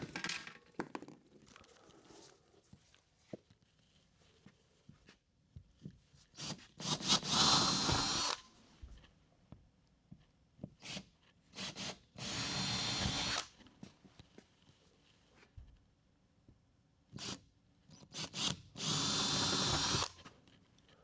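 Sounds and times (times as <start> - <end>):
power drill running: 6.8 - 8.4, 11.6 - 13.5, 18.2 - 20.1.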